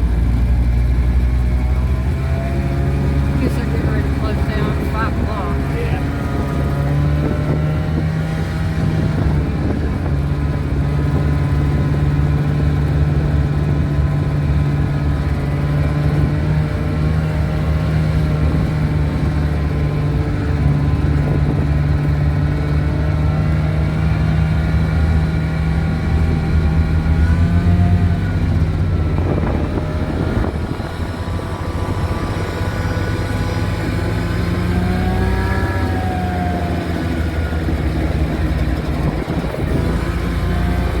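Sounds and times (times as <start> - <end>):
small truck engine running: 0.0 - 41.0.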